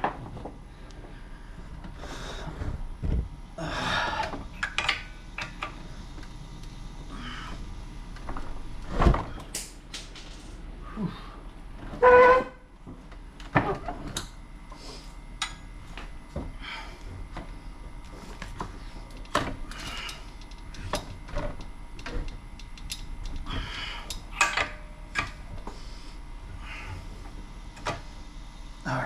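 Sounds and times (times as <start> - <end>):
metal part squealing: 12.0 - 12.6
tools and metal parts clicking: 19.1 - 21.1, 22.0 - 25.4.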